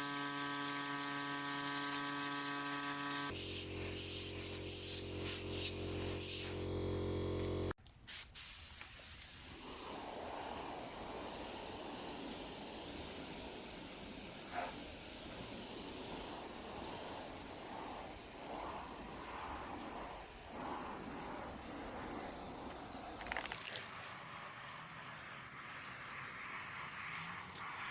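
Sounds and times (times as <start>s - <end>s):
steady hissing noise: 8.0s - 27.9s.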